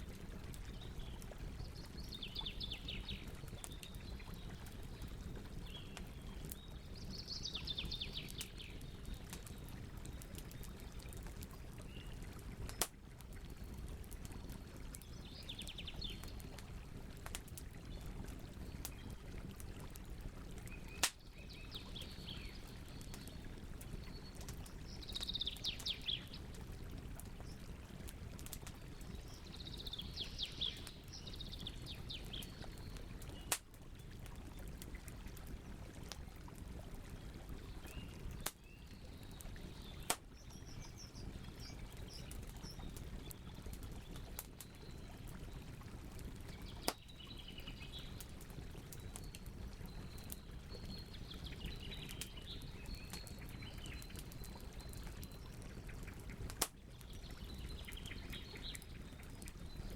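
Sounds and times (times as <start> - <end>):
campfire crackling and popping: 0.0 - 59.9
bird singing trilled phrases: 49.2 - 55.9.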